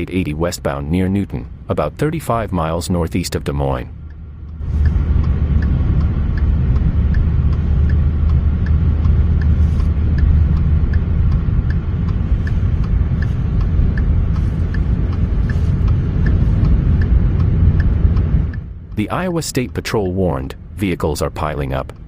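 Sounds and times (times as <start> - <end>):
car engine rumble: 0.0 - 22.0
faint regular tick: 1.2 - 22.0.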